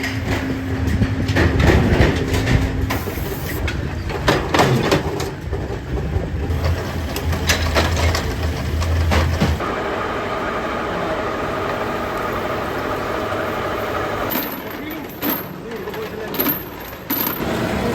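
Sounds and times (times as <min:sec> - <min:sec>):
metal clanks and knocks: 0:00.0 - 0:09.6
factory machinery humming: 0:00.0 - 0:17.9.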